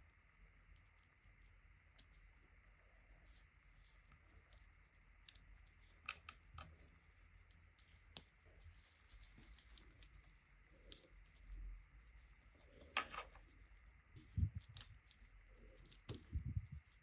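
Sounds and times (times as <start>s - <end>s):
crisp snips and rustles: 7.6s - 11.5s, 14.2s - 17.0s.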